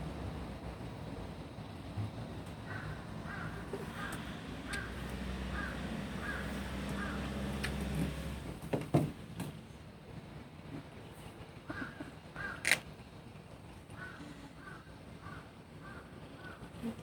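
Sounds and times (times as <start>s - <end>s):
crow cawing: 2.7s - 7.4s, 11.7s - 12.8s, 14.0s - 16.6s.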